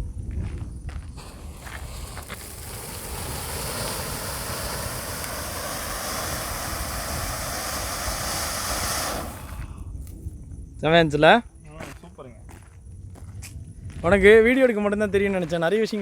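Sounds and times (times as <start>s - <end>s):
firework hissing sparks: 1.1s - 9.8s.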